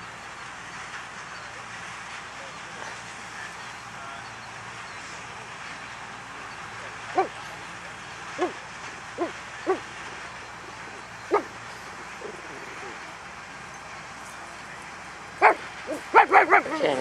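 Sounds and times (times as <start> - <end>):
dog barking deeply: 7.1 - 7.4, 8.4 - 8.6, 9.2 - 9.9, 11.2 - 13.0, 15.4 - 17.0.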